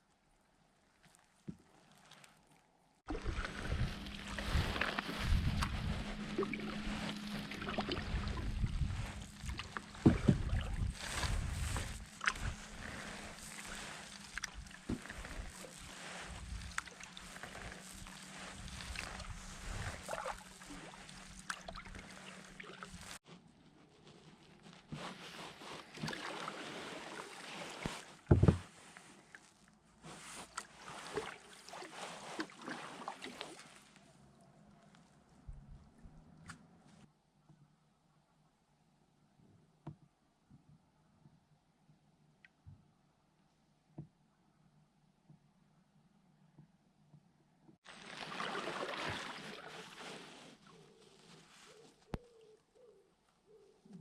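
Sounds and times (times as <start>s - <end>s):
water sloshing and lapping: 0.8s - 23.2s, 24.8s - 36.5s, 47.8s - 52.5s
wind rumble: 3.1s - 16.8s
knocks against hull: 28.3s - 28.6s.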